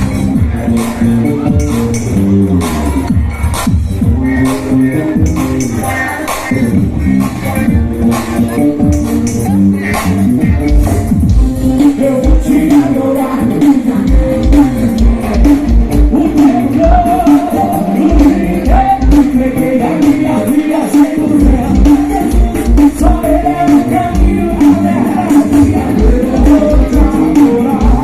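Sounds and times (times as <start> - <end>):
gospel band playing: 0.0 - 28.0
person singing: 7.4 - 28.0.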